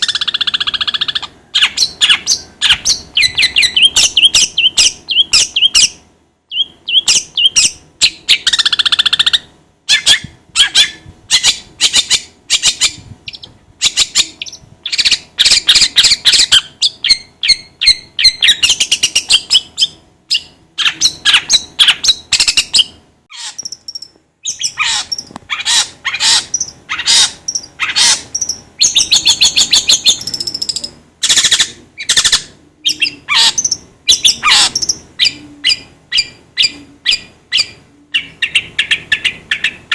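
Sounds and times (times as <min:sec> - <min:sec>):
shrike chattering and trilling: 0:20.8 - 0:39.9.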